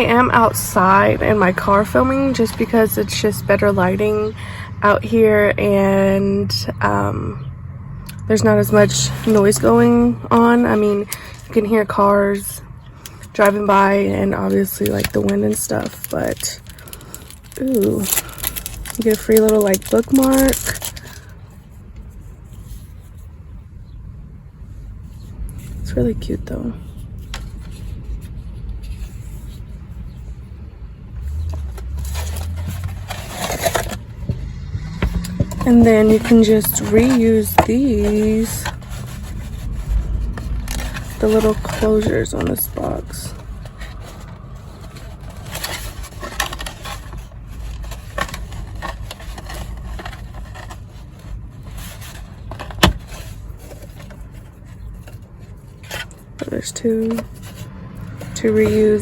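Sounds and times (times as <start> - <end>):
low steady rumble: 0.0 - 59.0
box rustling: 8.7 - 12.5, 13.1 - 21.4, 31.2 - 59.0
cardboard packaging clicks: 14.9 - 21.3
car passing by: 31.2 - 37.3, 57.6 - 59.0.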